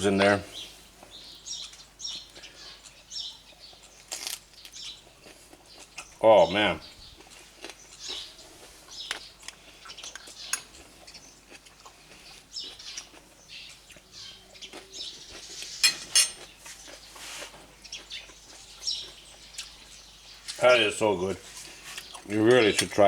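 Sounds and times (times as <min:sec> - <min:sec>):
cutlery clinking on a plate: 0:10.5 - 0:10.8, 0:15.8 - 0:16.5.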